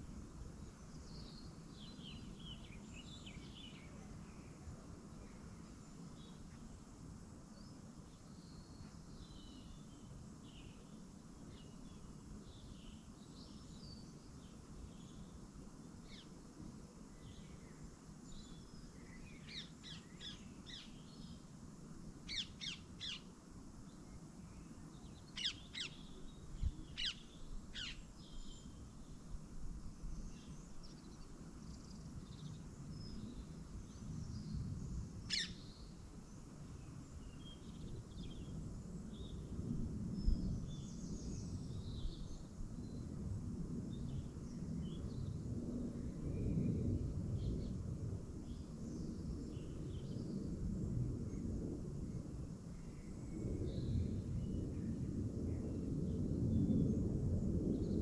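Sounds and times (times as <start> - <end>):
faint bird chirps: 7.5 - 15.4, 16.0 - 21.4, 22.3 - 29.3, 30.0 - 39.5.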